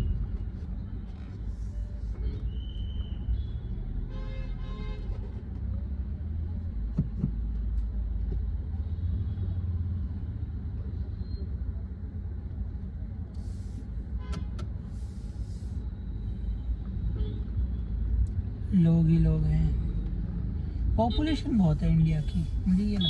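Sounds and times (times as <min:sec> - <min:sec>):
car engine and road rumble: 0:00.0 - 0:23.0
car horn: 0:04.1 - 0:05.2, 0:14.2 - 0:14.7.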